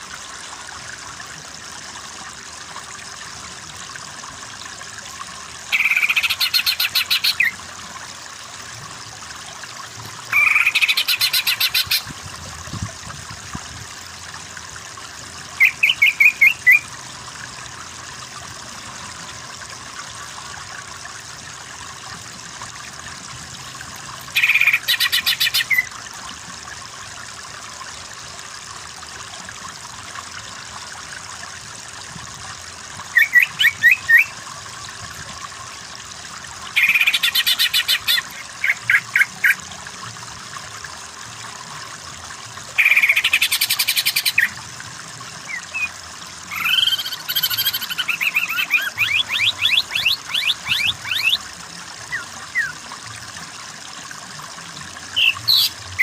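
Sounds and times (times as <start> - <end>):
running water hiss: 0.0 - 56.0
bird singing trilled phrases: 5.7 - 7.6, 10.3 - 12.1, 15.6 - 16.9, 24.3 - 25.9, 33.1 - 34.4, 36.8 - 39.6, 42.8 - 44.6, 45.5 - 45.9, 46.5 - 51.4, 52.1 - 52.8, 55.2 - 56.0.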